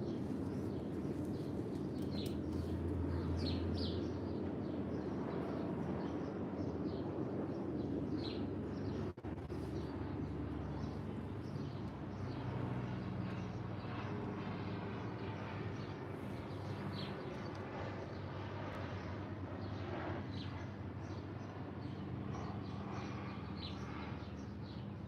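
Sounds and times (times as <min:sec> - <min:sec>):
birds chirping: 0:00.0 - 0:18.3.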